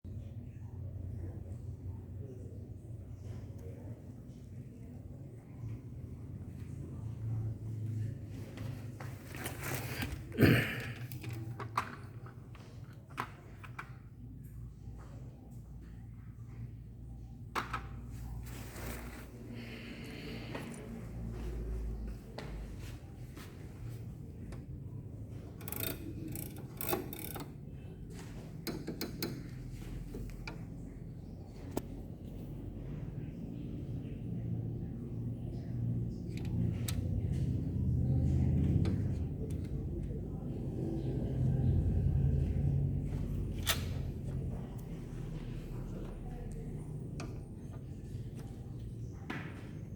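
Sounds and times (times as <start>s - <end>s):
low steady hum: 0.0s - 49.9s
small clicks and rustling: 23.8s - 31.9s
low hum: 29.8s - 49.2s.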